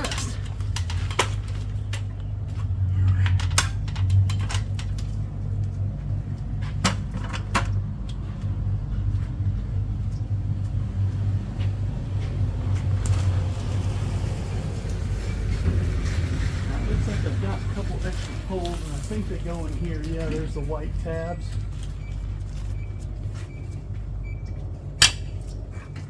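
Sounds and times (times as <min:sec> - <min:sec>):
clicks and knocks of handling: 0:00.0 - 0:08.5
vehicle engine hum: 0:00.0 - 0:26.0.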